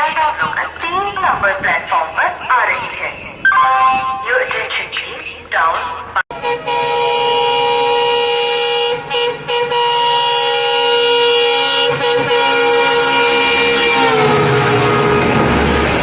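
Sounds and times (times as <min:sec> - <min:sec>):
locomotive air horn: 0:06.3 - 0:16.0.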